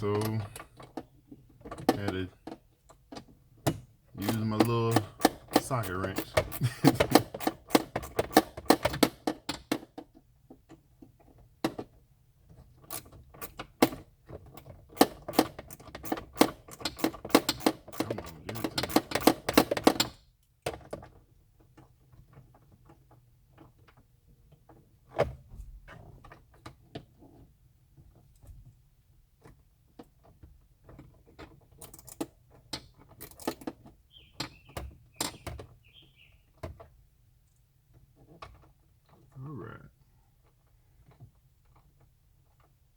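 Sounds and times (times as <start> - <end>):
ratchet wrench clicking: 4.2 - 9.2, 15.0 - 19.9.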